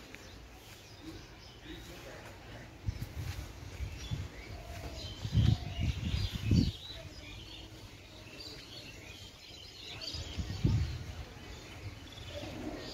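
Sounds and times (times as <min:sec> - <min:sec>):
outdoor background noise: 0:00.0 - 0:12.9
small birds chirping: 0:00.0 - 0:12.9.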